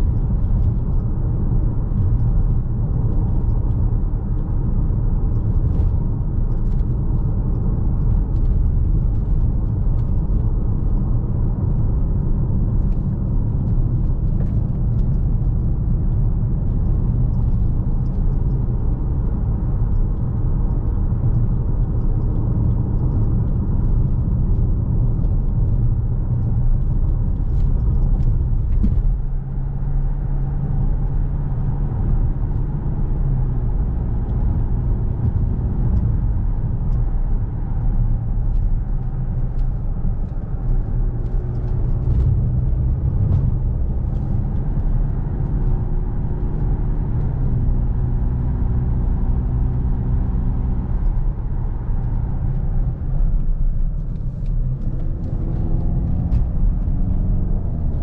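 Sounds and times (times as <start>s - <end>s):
low road rumble: 0.0s - 58.0s.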